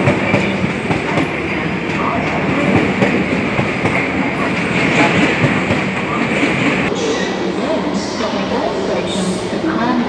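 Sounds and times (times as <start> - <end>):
train running rumble and hum: 0.0 - 10.0.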